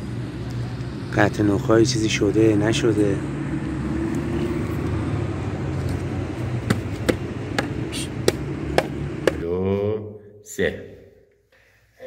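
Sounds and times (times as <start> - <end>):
car engine humming: 0.0 - 9.6.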